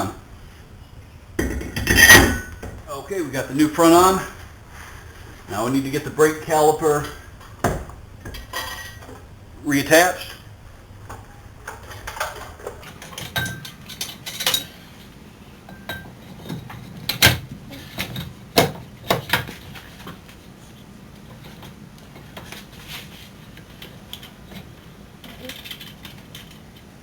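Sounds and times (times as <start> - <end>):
metal clinks and knocks: 1.4 - 2.9, 7.0 - 9.4, 11.0 - 14.8.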